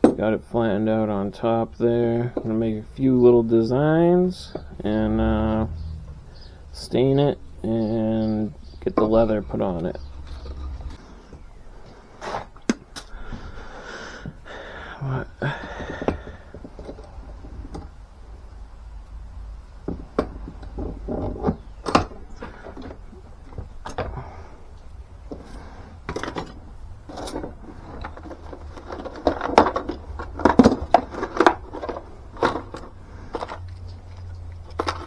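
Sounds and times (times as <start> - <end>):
clicks and scrapes of woodwork: 8.2 - 14.4, 15.5 - 18.1, 19.8 - 24.5, 25.2 - 35.0.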